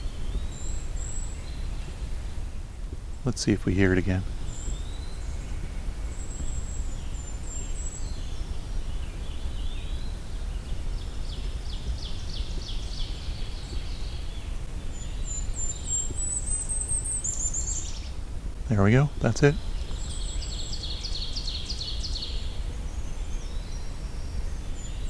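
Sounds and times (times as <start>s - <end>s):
lower bird chirps: 0.0s - 25.0s.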